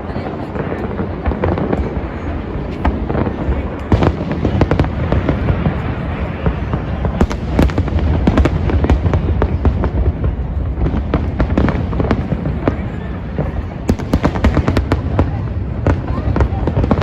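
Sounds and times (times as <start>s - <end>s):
fireworks bursts: 0.0s - 17.0s.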